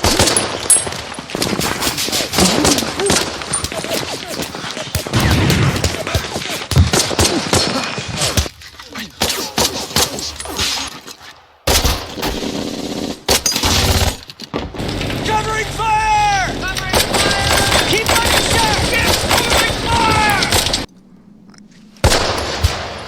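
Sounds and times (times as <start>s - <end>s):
rapid rifle and machine-gun fire: 0.0s - 8.5s, 11.7s - 20.9s.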